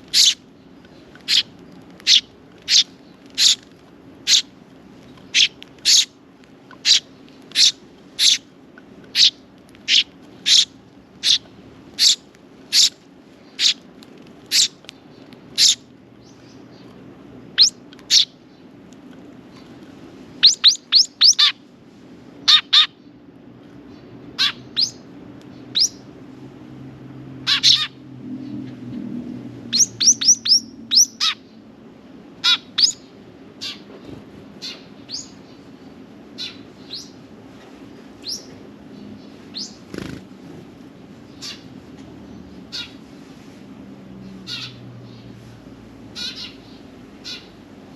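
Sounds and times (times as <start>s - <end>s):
sparrows chirping: 0.0s - 18.8s, 20.4s - 21.7s, 22.4s - 23.2s, 23.8s - 26.2s, 27.4s - 28.7s, 29.6s - 31.6s, 32.4s - 33.9s, 34.6s - 37.3s, 38.0s - 40.2s, 40.9s - 43.3s, 44.2s - 45.5s, 46.1s - 47.6s.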